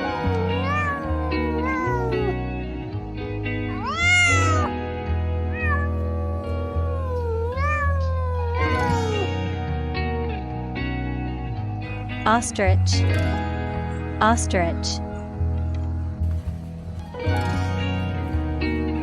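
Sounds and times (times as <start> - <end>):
cat meowing: 0.0 - 2.6, 3.6 - 4.8, 5.5 - 9.4
background music: 0.0 - 19.0.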